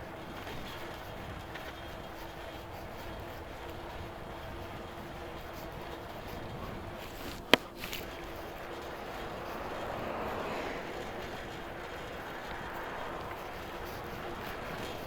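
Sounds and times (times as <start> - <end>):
street and riding noise: 0.0 - 15.0
small ticks: 0.4 - 15.0.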